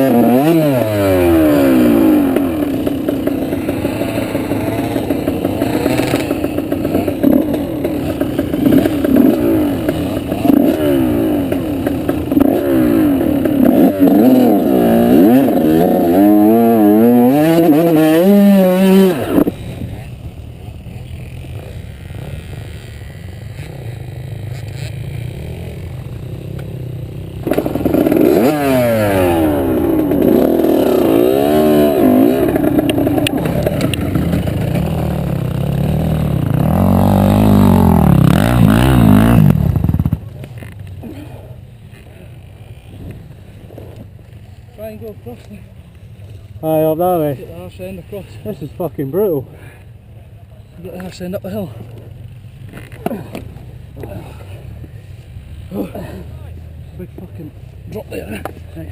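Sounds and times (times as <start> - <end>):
motorbike engine revving: 0.0 - 44.1, 50.9 - 58.9.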